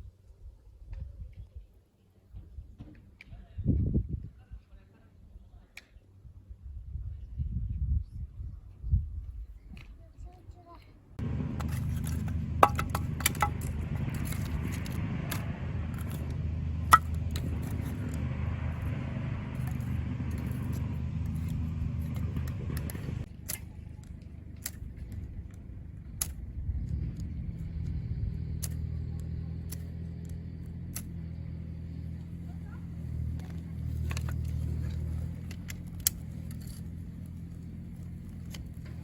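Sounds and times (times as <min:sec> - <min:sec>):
low engine-like hum: 0:10.1 - 0:39.0.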